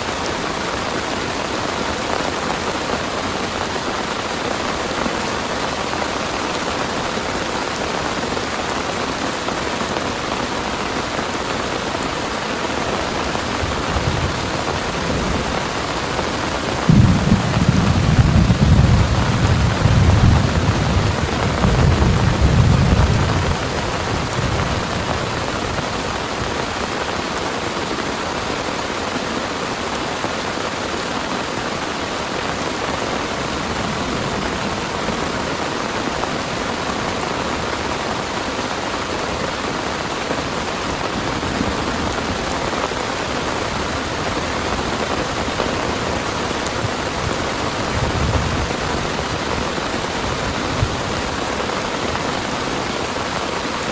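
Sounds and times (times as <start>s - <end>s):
heavy rain pouring: 0.0s - 53.9s
low rumble of thunder: 13.5s - 25.9s, 46.2s - 51.4s.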